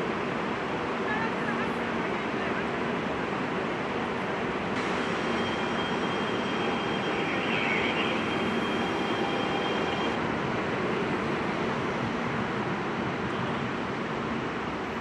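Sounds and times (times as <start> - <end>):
electric train rushing: 3.8 - 13.1.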